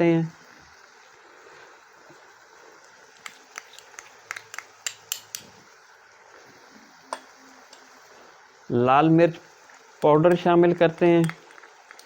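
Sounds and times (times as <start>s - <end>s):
faint hiss of cooking food: 0.0s - 12.0s
metal spoon clinking on a pot: 3.6s - 5.5s.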